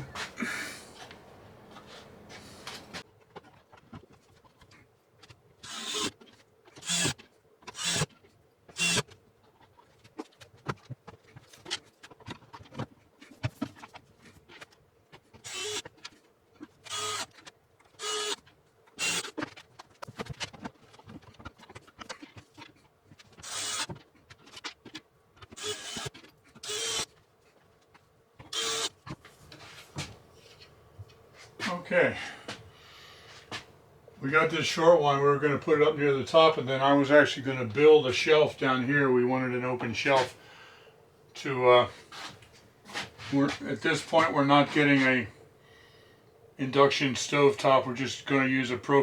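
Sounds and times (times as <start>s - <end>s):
cordless drill driving screws: 5.6s - 6.2s, 6.8s - 8.1s, 8.7s - 9.1s, 15.4s - 15.9s, 16.8s - 18.4s, 19.0s - 19.4s, 23.3s - 24.0s, 25.4s - 27.1s, 28.4s - 29.0s.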